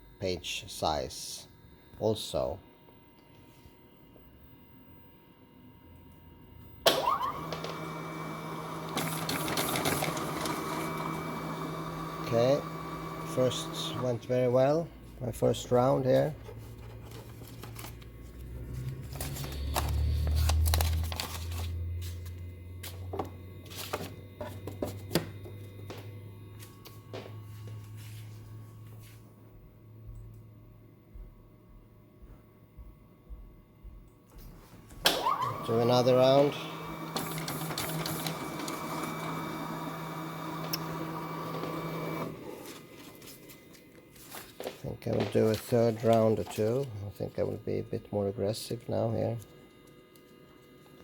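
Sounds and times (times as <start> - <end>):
document scanner motor hum: 0.0 - 29.4, 34.4 - 51.0
paper sheets rustling: 8.9 - 11.2, 16.0 - 23.0, 23.6 - 25.2, 37.1 - 39.6, 41.5 - 47.0.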